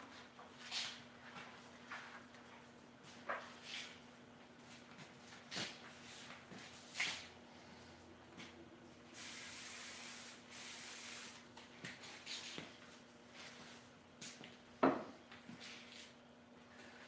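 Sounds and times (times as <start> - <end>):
aerosol spray can hissing: 9.2 - 11.4.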